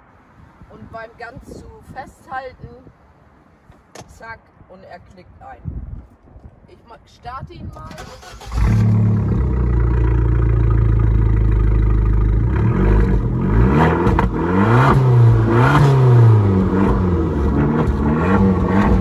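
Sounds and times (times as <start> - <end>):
car engine idling: 8.1 - 14.5
car engine revving in blips: 8.1 - 19.0.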